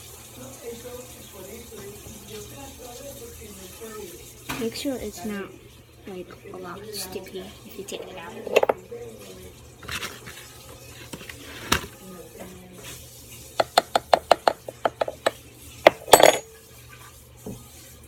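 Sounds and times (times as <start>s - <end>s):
utensil knocking a mixing bowl: 8.5s - 8.8s, 13.6s - 16.4s.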